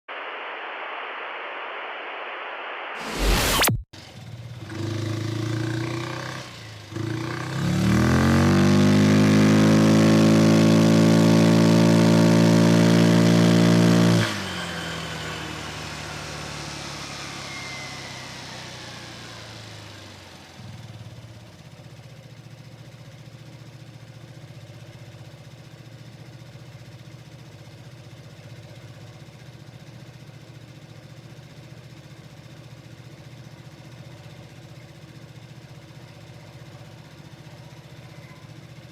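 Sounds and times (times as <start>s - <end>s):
scooter engine revving: 4.0s - 29.1s.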